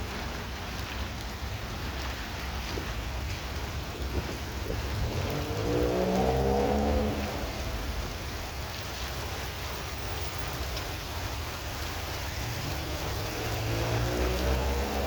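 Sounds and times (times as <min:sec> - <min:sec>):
heavy rain falling: 0:00.0 - 0:15.0
passing vehicle hum: 0:03.5 - 0:09.4, 0:10.6 - 0:15.0.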